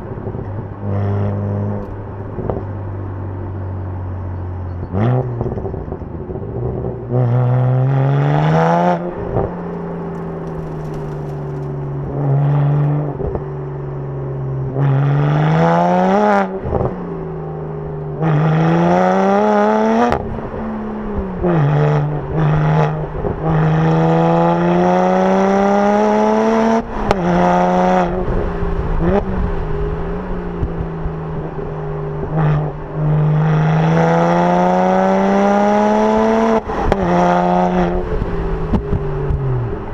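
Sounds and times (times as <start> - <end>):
car engine accelerating: 0.0 - 39.9
exhaust pops: 10.0 - 12.0, 38.0 - 39.8.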